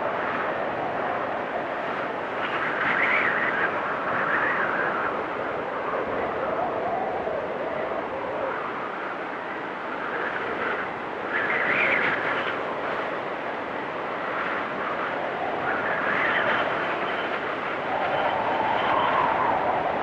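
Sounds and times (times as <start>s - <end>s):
strong wind with whistling gusts: 0.0s - 20.0s.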